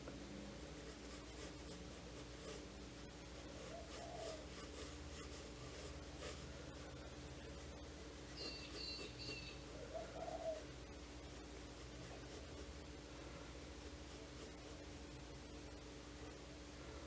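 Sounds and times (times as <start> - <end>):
steady low hum: 0.0 - 17.0
pencil scratching on paper: 0.5 - 12.9, 13.6 - 16.1
high bird chirp: 8.4 - 9.6
low coo-like call: 9.9 - 10.7.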